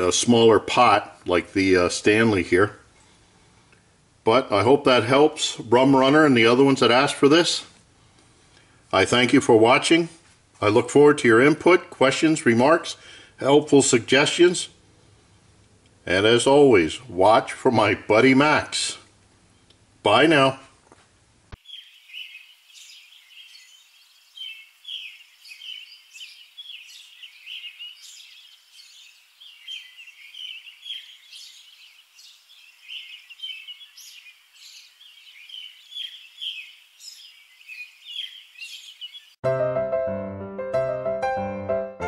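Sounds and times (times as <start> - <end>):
songbirds chirping and singing: 21.6 - 39.4.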